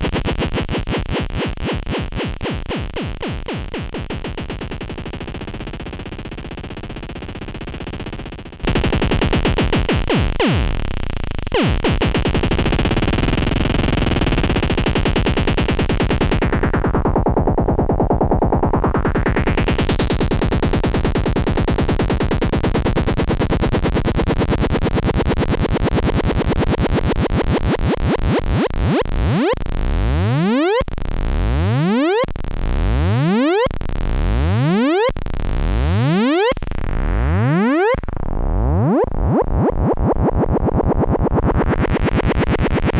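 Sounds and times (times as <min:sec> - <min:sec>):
synthesizer buzzing tone: 0:27.8 - 0:40.8
synthesizer rising pitch sweeps: 0:28.3 - 0:42.9.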